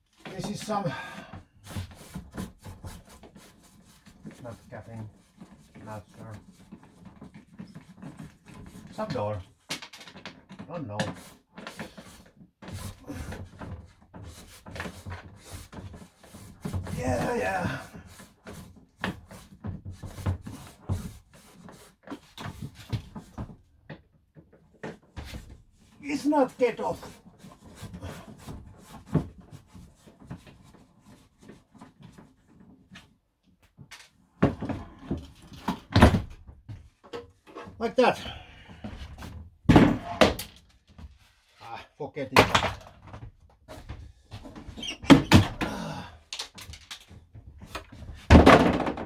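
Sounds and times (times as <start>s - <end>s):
wooden door knocking and rattling: 39.7s - 40.6s, 48.1s - 49.0s.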